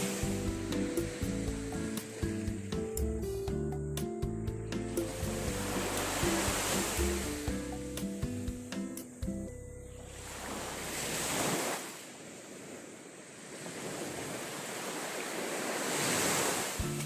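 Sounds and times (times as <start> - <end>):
waves breaking on beach: 0.0 - 3.0, 4.9 - 7.9, 10.1 - 17.0.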